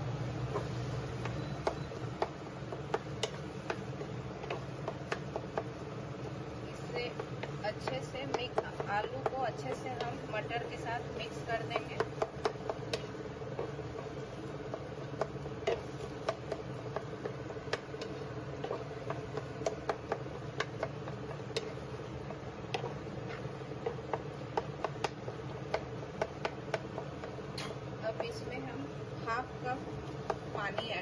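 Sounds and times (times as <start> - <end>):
steady hum: 0.0 - 31.0
wooden spatula scraping a pan: 2.8 - 27.4.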